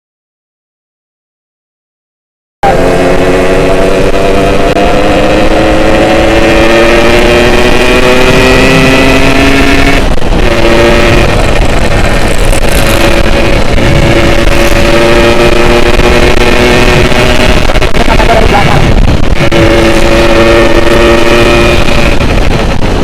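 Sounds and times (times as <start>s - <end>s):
two-stroke motorcycle engine accelerating: 2.6s - 23.0s.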